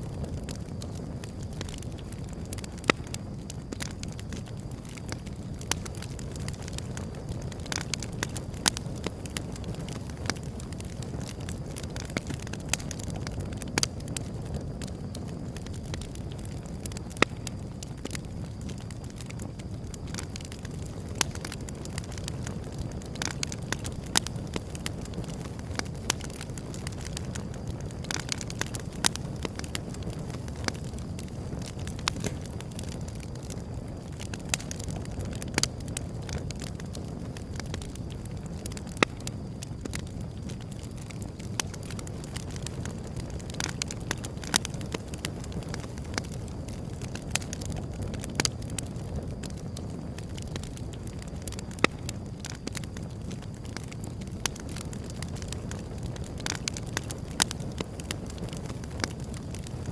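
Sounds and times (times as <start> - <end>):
fire crackles and pops: 0.0 - 59.9
wood fire rumbling: 0.0 - 59.9.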